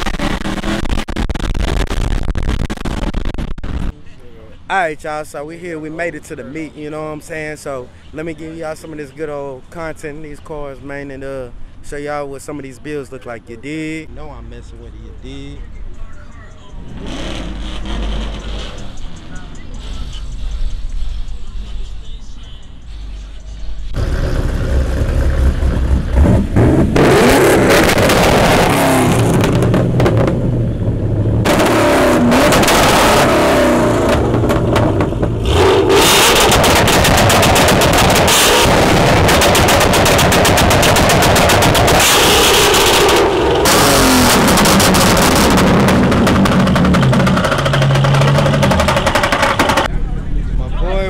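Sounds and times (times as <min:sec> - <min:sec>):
car engines revving with crackle: 0:00.0 - 0:04.0, 0:15.1 - 0:50.6.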